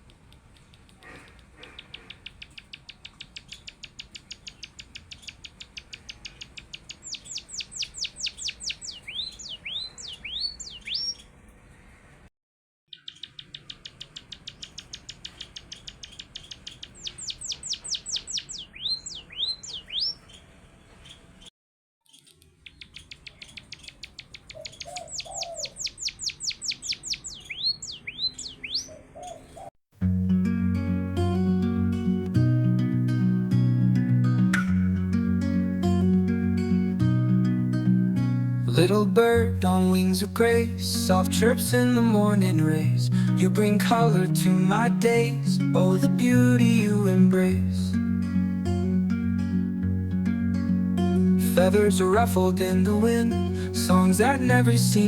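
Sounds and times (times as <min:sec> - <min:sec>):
bird trilling and whistling: 0:01.7 - 0:11.2, 0:12.9 - 0:21.2, 0:22.6 - 0:29.7.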